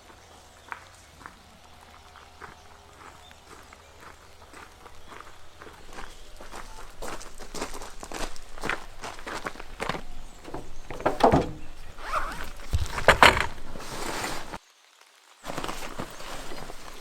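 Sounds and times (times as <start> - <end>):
rustling and knocking handling noise: 9.6 - 14.6
sharp knocks: 10.4 - 11.7.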